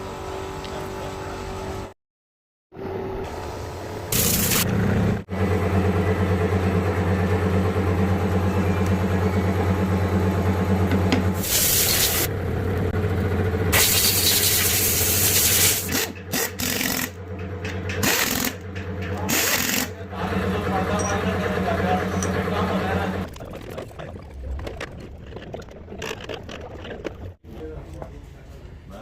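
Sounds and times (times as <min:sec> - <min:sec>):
machine hum: 0:02.8 - 0:27.3
bursts of hissing air: 0:11.4 - 0:12.3, 0:13.8 - 0:15.9.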